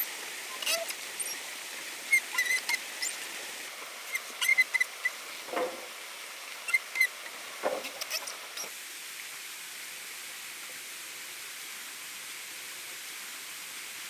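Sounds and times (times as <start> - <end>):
dull knocks: 5.5 - 5.9.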